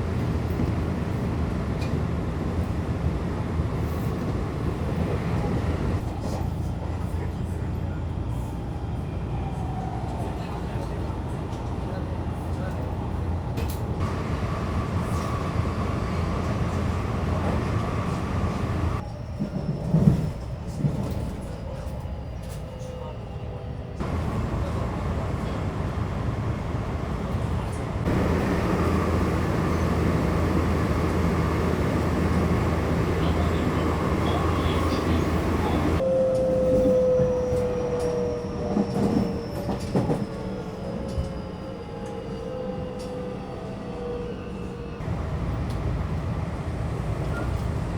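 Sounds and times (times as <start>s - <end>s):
train wheels rumbling: 0.0s - 6.9s, 12.6s - 21.4s, 24.0s - 36.0s, 45.0s - 47.9s.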